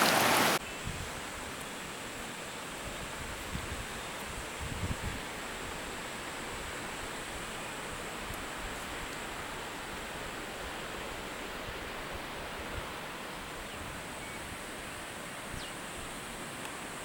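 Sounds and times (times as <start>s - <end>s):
waterfall roaring: 0.0s - 0.6s.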